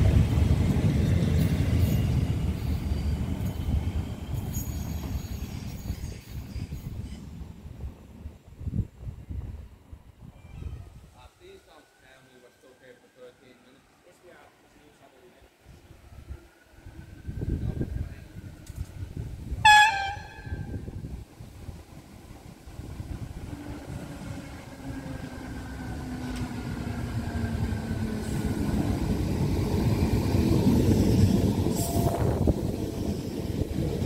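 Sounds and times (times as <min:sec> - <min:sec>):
train wheels rumbling on rail: 0:00.0 - 0:10.6, 0:16.0 - 0:34.0
train horn blast: 0:19.6 - 0:20.8.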